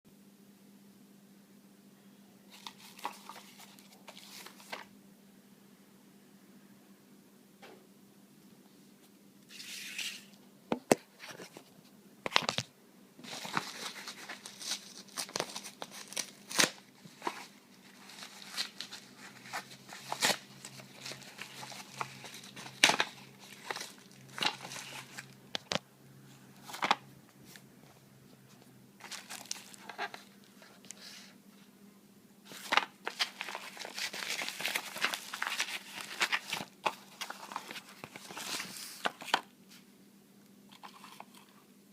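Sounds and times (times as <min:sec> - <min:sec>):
plastic packaging crinkling: 0:02.5 - 0:04.9, 0:13.2 - 0:25.8, 0:29.0 - 0:31.0, 0:32.5 - 0:39.5.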